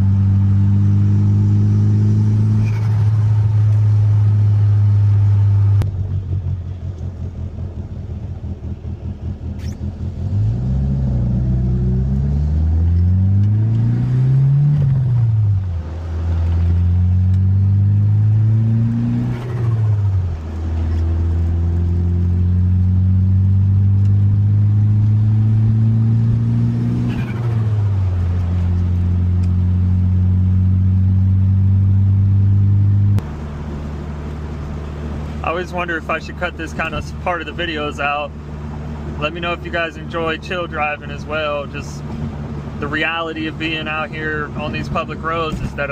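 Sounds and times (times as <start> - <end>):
car engine accelerating and shifting: 0.0 - 45.9.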